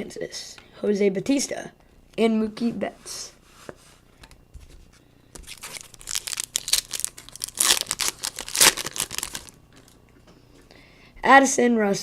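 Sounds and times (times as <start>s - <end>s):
foil wrapper crinkling: 5.4s - 10.0s.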